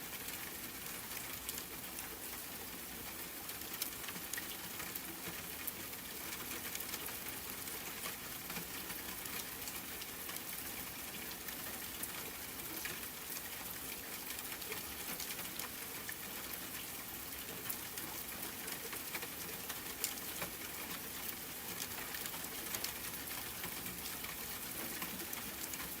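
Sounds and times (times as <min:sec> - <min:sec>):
raindrop ticks: 0:03.1 - 0:10.5, 0:17.6 - 0:26.0.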